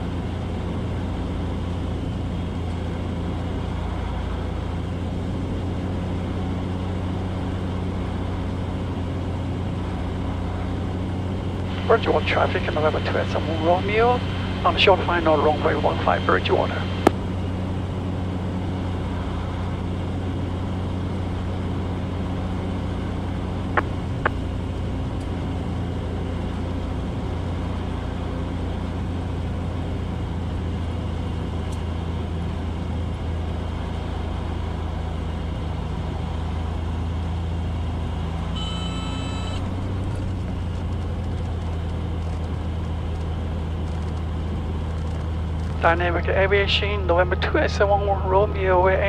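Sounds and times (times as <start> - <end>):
aircraft engine and propeller drone: 0.0 - 49.0
brief high tone: 38.5 - 39.7.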